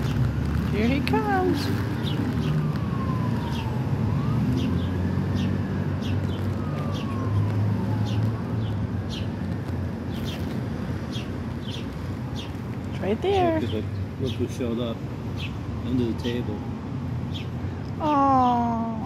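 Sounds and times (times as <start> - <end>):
low traffic rumble: 0.0 - 19.0
siren wailing: 0.7 - 9.4.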